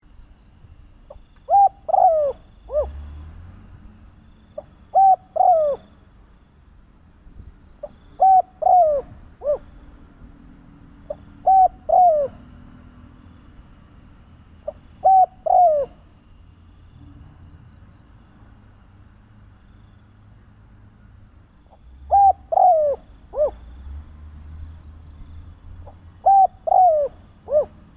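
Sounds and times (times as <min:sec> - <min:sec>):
dove cooing: 0:01.5 - 0:03.0, 0:04.6 - 0:05.9, 0:07.9 - 0:09.7, 0:11.1 - 0:12.4, 0:14.6 - 0:16.0, 0:22.1 - 0:23.6, 0:25.8 - 0:27.8.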